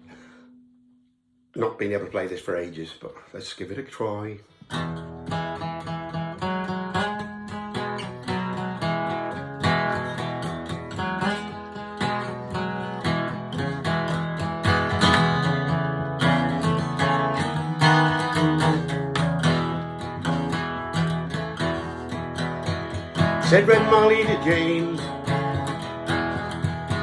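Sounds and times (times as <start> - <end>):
fingerpicked acoustic guitar: 4.5 - 27.0.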